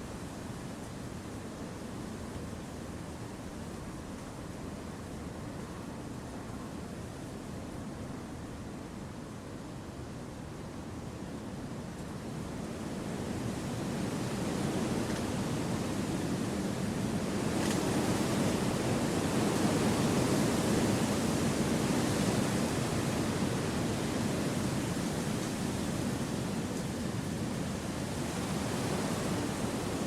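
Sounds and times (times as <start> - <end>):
wind rushing through trees: 12.9 - 30.0.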